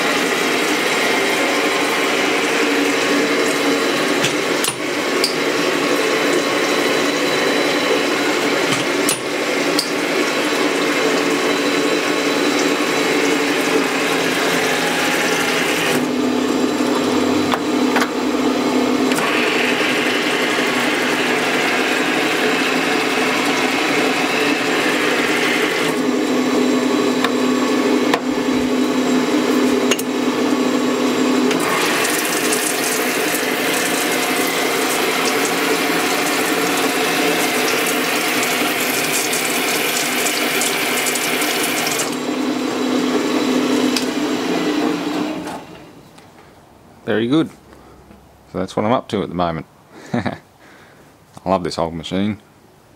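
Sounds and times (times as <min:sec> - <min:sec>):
lathe motor and gearing whirring: 0:00.0 - 0:46.1.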